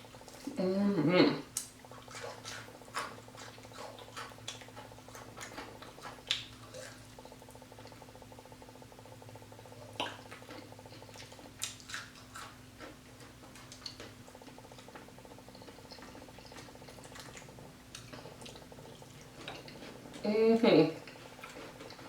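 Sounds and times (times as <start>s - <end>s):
low electrical hum: 0.0s - 22.0s
chewing with wet smacks: 1.4s - 22.0s.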